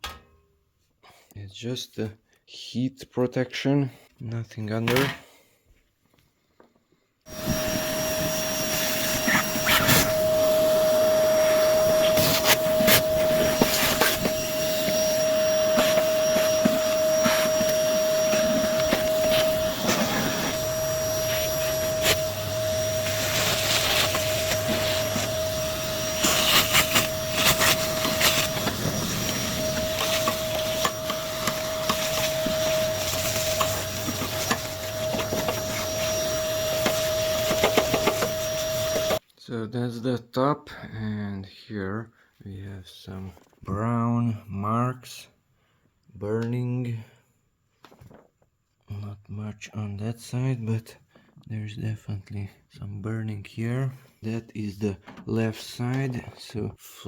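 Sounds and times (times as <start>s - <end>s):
vacuum cleaner whine: 7.3s - 39.2s
nozzle clicks and scrapes: 15.7s - 39.2s.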